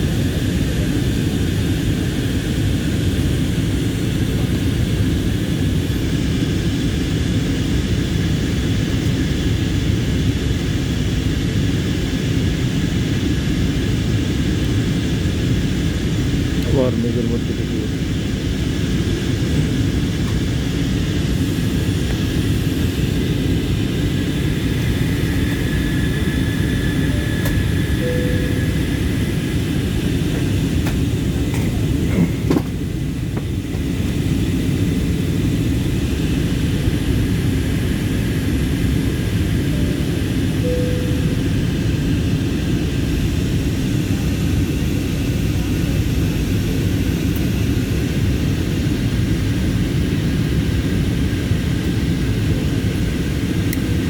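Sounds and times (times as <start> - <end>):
airplane cabin engine drone: 0.0 - 54.0.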